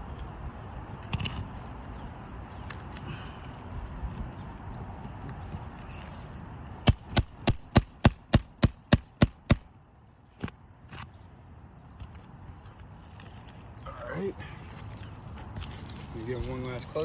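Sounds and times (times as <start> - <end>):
hammer striking metal bar: 6.9 - 9.7.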